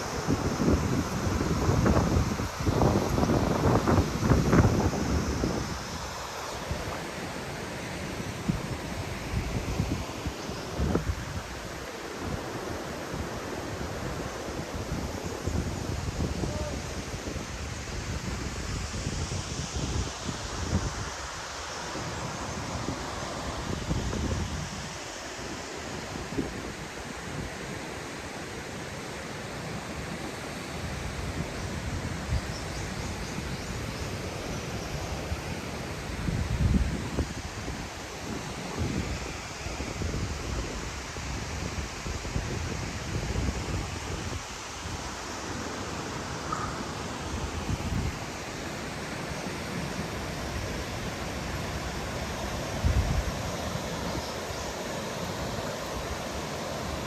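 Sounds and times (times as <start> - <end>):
waterfall rushing: 0.0 - 14.6
wind gusting on microphone: 0.0 - 27.9, 30.8 - 57.0.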